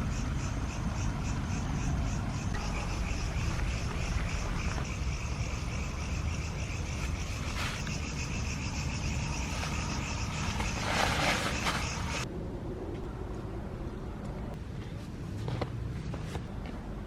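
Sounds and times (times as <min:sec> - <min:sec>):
steady low rumble: 0:00.0 - 0:10.6
insects chirping: 0:00.0 - 0:12.3.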